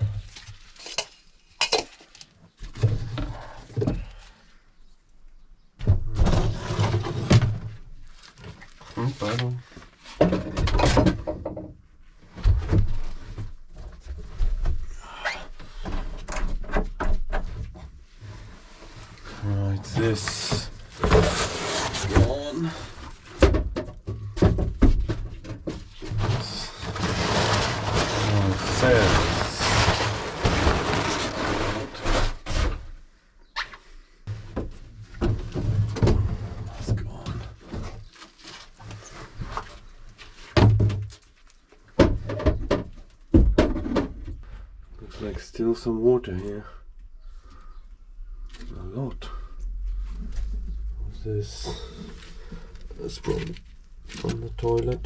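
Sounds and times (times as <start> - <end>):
objects knocking and scraping: 0.0 - 4.2, 5.8 - 14.9, 15.6 - 32.9, 34.3 - 45.4, 48.5 - 55.0
knocks and clunks: 10.2 - 11.8, 23.2 - 27.2, 41.9 - 44.6.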